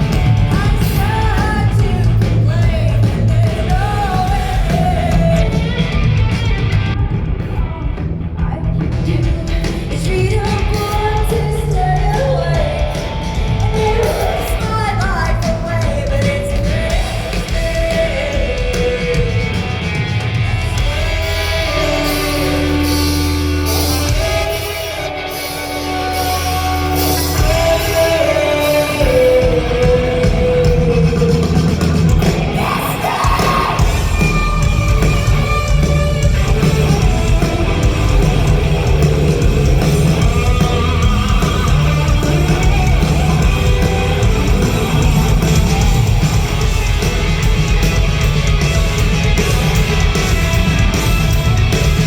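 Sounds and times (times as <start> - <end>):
woman singing: 0.0 - 6.0, 7.4 - 19.9, 25.8 - 46.2
live rock band playing: 0.0 - 52.0.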